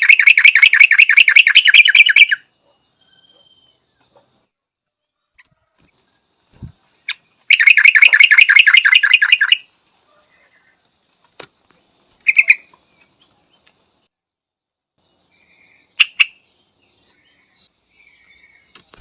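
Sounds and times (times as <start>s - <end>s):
bird calling: 0.0s - 4.3s, 6.6s - 10.8s, 12.2s - 13.7s, 15.4s - 19.0s.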